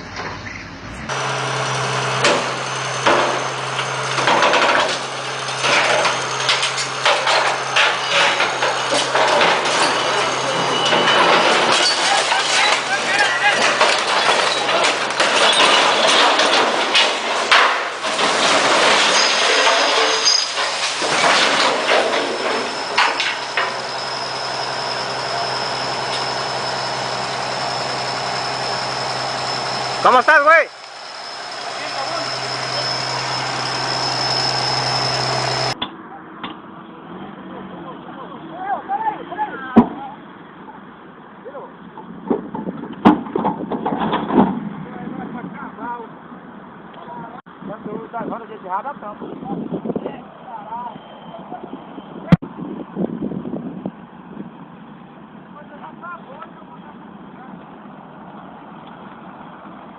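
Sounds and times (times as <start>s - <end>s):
engine running: 0.0s - 35.8s
sharp knocks and clatter: 2.2s - 12.9s, 13.6s - 24.2s
thin high whine: 21.7s - 35.8s.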